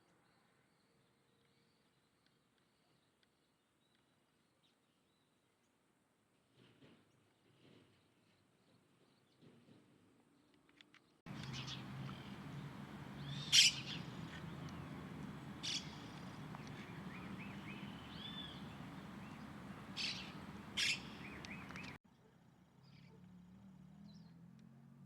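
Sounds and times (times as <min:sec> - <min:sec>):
birds chirping: 0:11.3 - 0:22.0
steady background hiss: 0:11.3 - 0:22.0.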